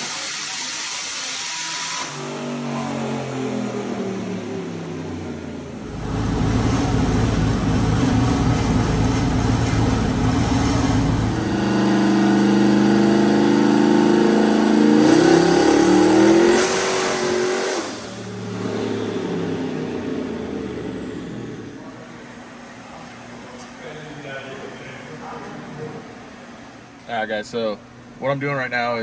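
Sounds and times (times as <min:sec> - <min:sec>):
engine full-throttle pull: 0:00.0 - 0:21.9.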